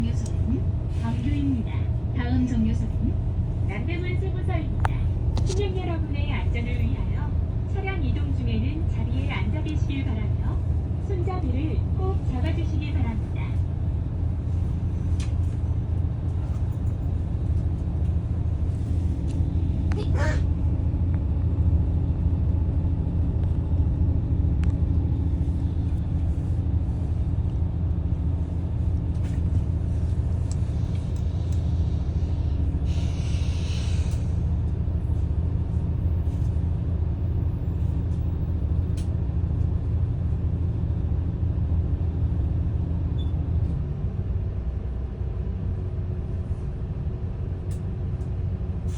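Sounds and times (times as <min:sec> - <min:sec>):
bus diesel engine drone: 0:00.0 - 0:48.9
air brake hiss: 0:32.2 - 0:34.4.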